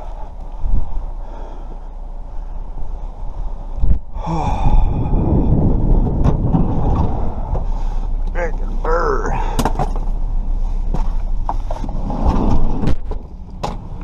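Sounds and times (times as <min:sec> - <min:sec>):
wind rumbling on microphone: 0:00.0 - 0:14.0
heavy breathy sigh: 0:04.1 - 0:05.6, 0:09.2 - 0:09.7.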